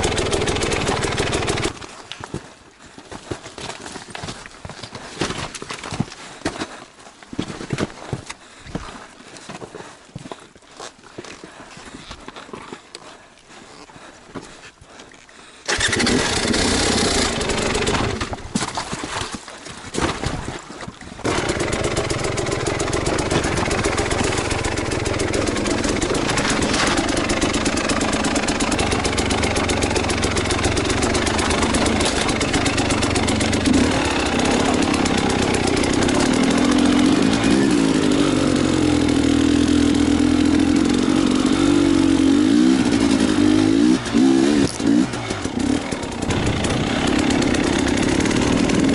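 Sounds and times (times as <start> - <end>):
motorcycle engine running: 0.0 - 1.8, 15.7 - 18.5, 21.2 - 48.9.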